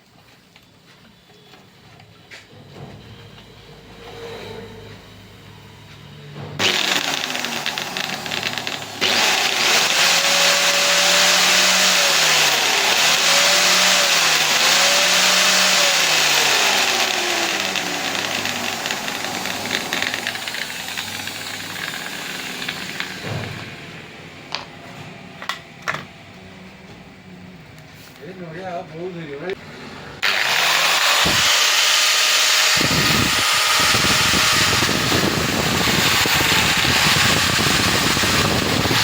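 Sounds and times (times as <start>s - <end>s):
angle grinder whining: 6.6s - 23.8s, 30.2s - 39.0s.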